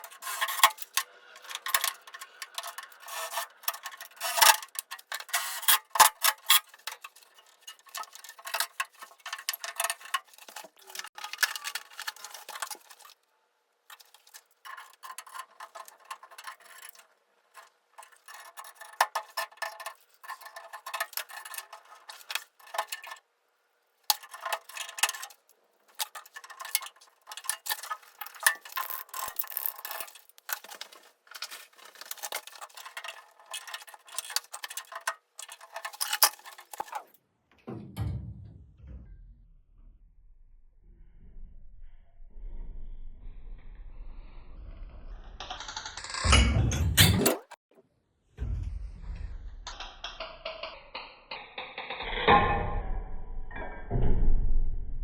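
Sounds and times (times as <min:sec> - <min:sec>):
clicking and knocking on pipes: 0:24.1 - 0:39.3.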